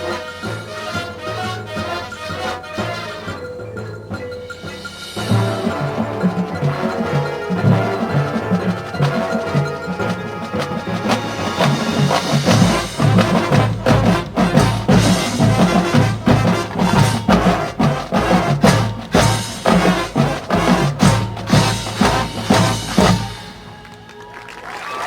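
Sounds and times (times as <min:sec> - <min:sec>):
marching band playing: 0:00.0 - 0:25.0.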